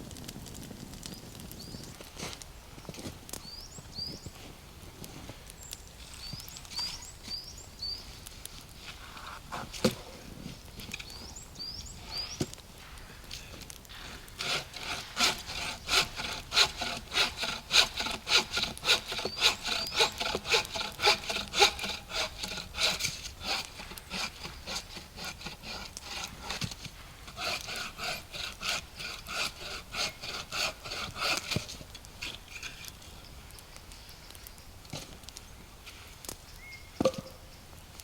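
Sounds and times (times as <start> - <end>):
hand saw cutting wood: 13.9 - 32.9.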